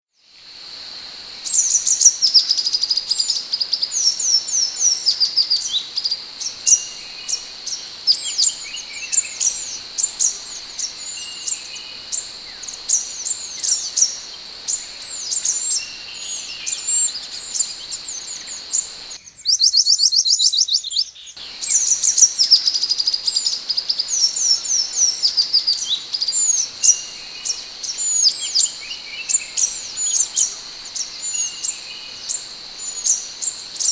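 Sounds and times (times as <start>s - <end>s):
bird whistled chirps: 8.1s - 33.9s.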